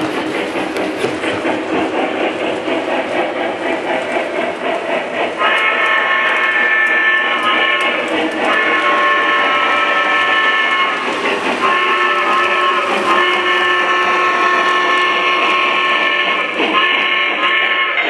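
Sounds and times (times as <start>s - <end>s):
model train whistle blasts: 5.4s - 11.0s, 11.6s - 18.0s.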